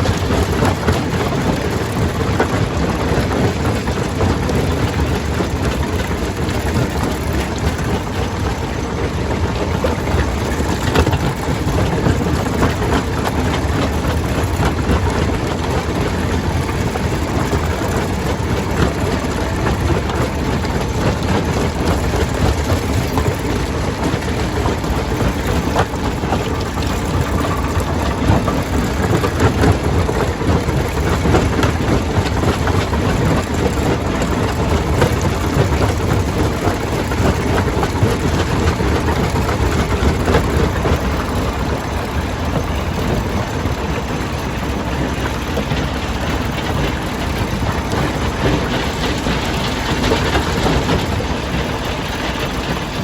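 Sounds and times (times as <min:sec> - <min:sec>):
stone crusher rumbling: 0:12.1 - 0:53.0.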